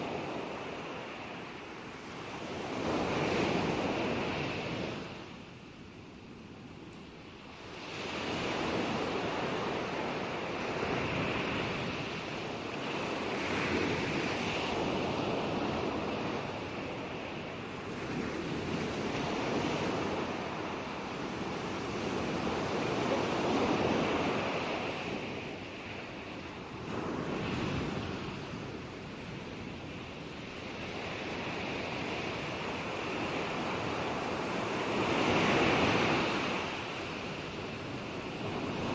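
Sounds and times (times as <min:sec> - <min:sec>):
waves breaking on shore: 0:00.0 - 0:05.6, 0:07.3 - 0:38.9.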